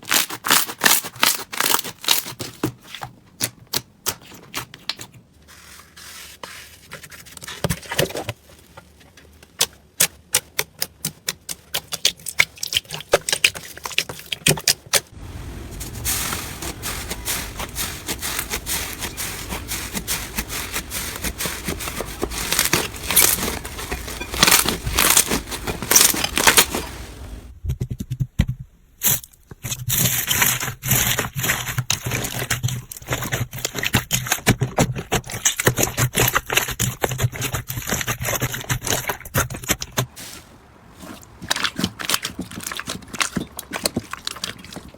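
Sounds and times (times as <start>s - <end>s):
slime crackling and squishing: 11.7s - 27.5s, 41.0s - 44.9s
faint steady hum: 15.2s - 27.8s.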